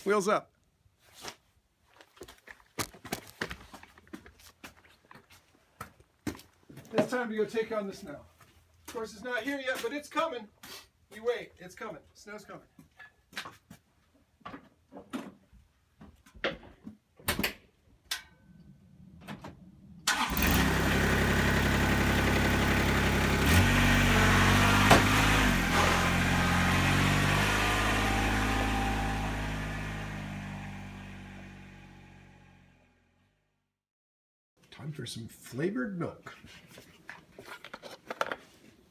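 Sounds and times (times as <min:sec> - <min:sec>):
diesel engine starting and running: 0:20.0 - 0:33.0.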